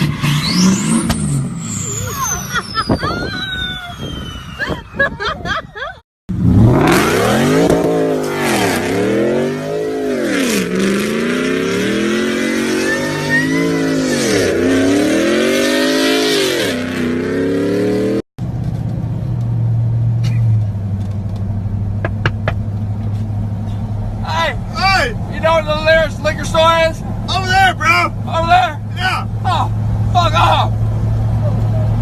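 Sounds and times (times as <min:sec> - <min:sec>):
truck engine revving: 0:00.0 - 0:04.6, 0:06.3 - 0:18.2.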